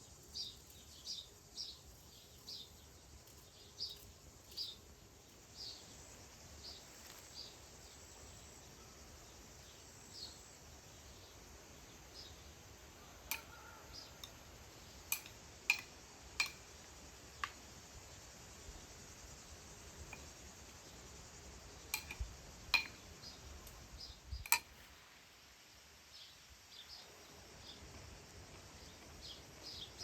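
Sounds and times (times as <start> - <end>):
small bird chirping: 0.0 - 16.7.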